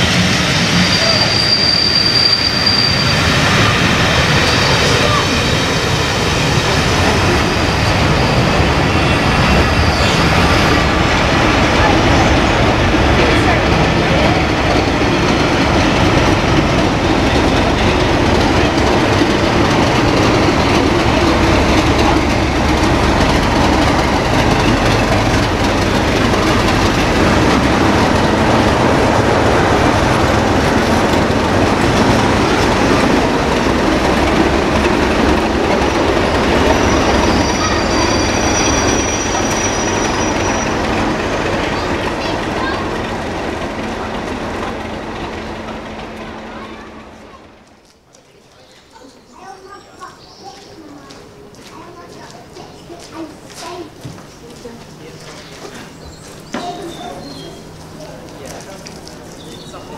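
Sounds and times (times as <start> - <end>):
train passing with rumble: 0.0 - 48.2, 48.8 - 59.9
diesel locomotive engine: 0.0 - 59.9
thin high squeal: 0.8 - 3.4, 7.6 - 10.7, 36.6 - 40.9
wheels clattering over rail joints: 3.6 - 47.8.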